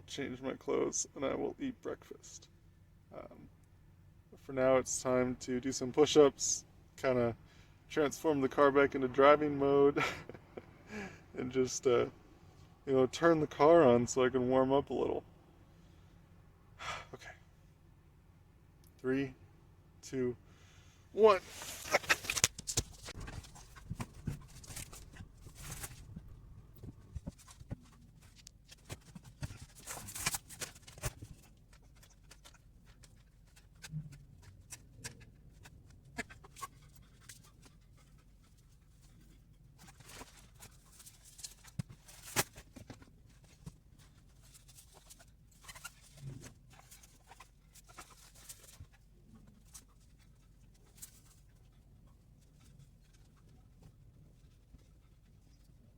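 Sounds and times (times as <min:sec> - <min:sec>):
clothes rustling: 0:21.2 - 0:55.9.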